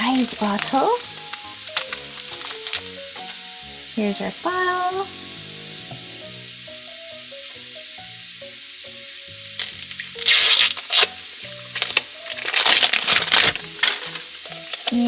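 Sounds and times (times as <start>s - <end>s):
plastic packaging crinkling: 0.0s - 4.8s, 9.4s - 15.0s
light background music: 0.0s - 15.0s.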